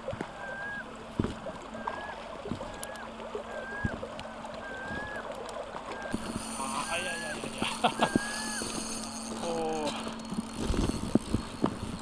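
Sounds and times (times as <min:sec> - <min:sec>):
bird whistling: 0:02.8 - 0:04.0, 0:04.6 - 0:05.2, 0:08.0 - 0:08.7.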